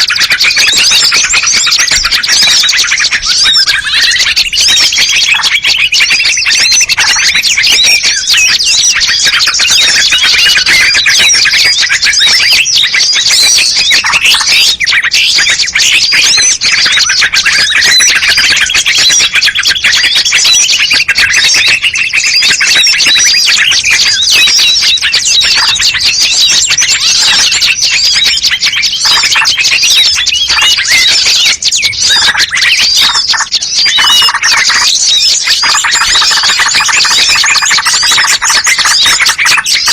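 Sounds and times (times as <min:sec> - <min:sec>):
songbirds chirping and squawking: 0:00.0 - 0:39.9.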